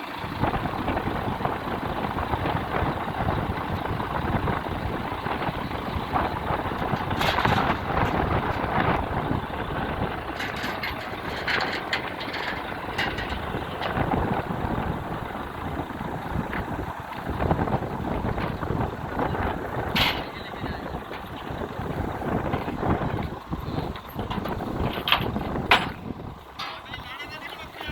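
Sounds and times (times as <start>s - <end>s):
diesel engine running: 0.0s - 27.9s
metal knocks or clanks: 5.1s - 14.7s, 19.8s - 27.4s.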